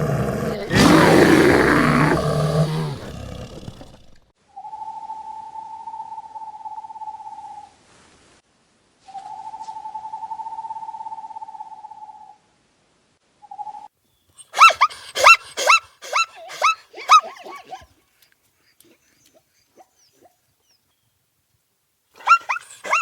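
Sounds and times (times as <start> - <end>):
animal trilling calls: 0.5 - 4.2, 14.4 - 17.9, 22.2 - 23.0.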